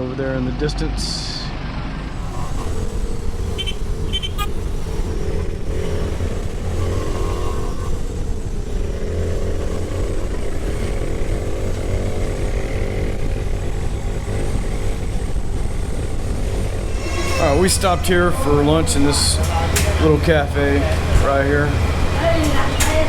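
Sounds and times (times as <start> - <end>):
heavy low rumble: 0.0 - 23.0
motorcycle engine running: 1.8 - 23.0.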